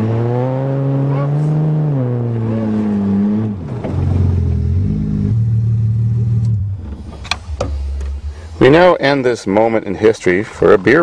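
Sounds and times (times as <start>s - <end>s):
car engine running: 1.1s - 8.9s.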